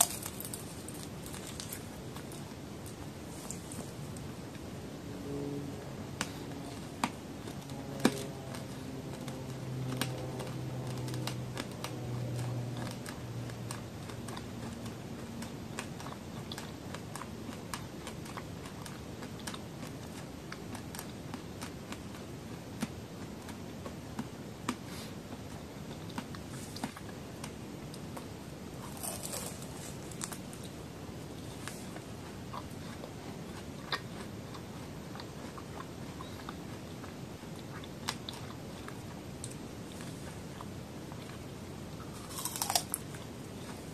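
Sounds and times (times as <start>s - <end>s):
hard candy cracking between teeth: 0.0s - 3.7s, 42.0s - 43.2s
crunch of biting fruit: 0.0s - 4.0s, 28.7s - 30.7s, 42.0s - 43.9s
closed-mouth hum: 0.0s - 43.9s.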